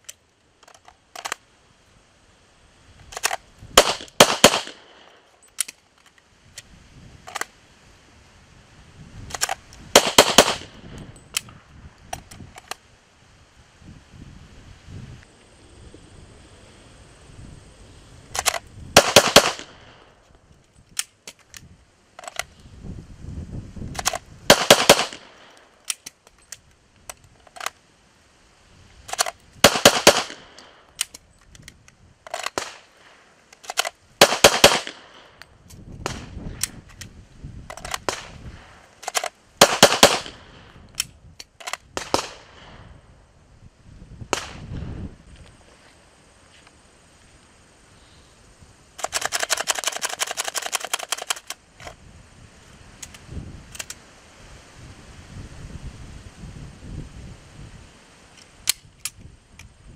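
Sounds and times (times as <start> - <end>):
pistol metallic clicks: 0.0 - 1.4, 3.1 - 7.5, 9.3 - 12.8, 18.3 - 19.9, 20.8 - 22.5, 23.9 - 27.8, 29.1 - 32.9, 33.5 - 37.1, 37.7 - 38.3, 38.9 - 42.7, 49.0 - 52.0, 53.0 - 54.0, 58.3 - 59.7.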